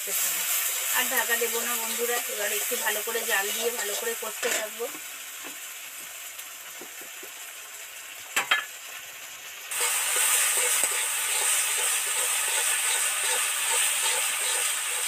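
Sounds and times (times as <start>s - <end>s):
food sizzling in a pan: 0.0s - 15.0s
spatula stirring and scraping: 1.9s - 4.7s, 9.7s - 15.0s.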